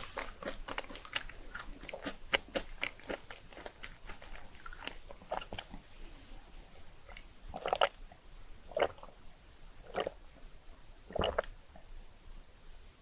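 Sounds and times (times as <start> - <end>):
person chewing: 0.0 - 5.8.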